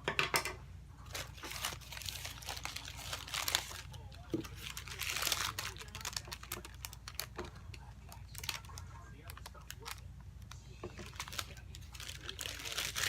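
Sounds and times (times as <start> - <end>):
wax paper crinkling and crackling: 1.0 - 13.0.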